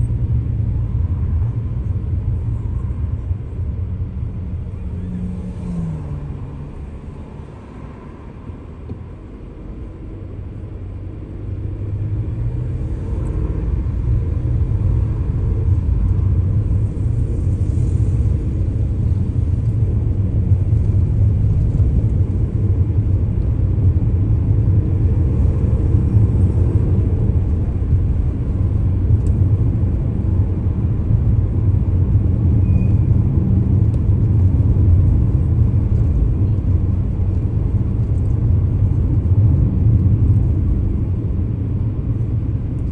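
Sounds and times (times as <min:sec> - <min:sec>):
car driving: 0:00.0 - 0:42.9.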